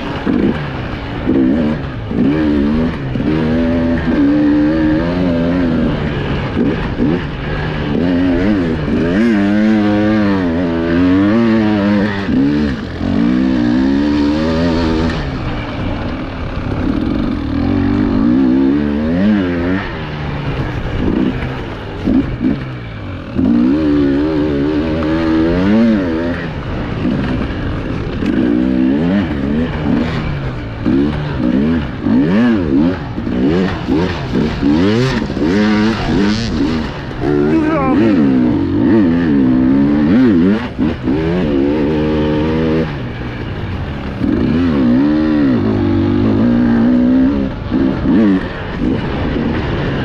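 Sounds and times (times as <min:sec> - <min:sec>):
motorcycle engine revving: 0:00.0 - 0:50.0.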